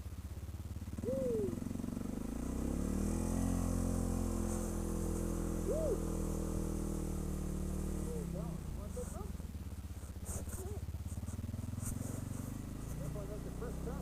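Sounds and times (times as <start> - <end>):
atv engine revving: 0.0 - 14.0
hoot-like calls: 1.0 - 1.6, 5.6 - 6.2.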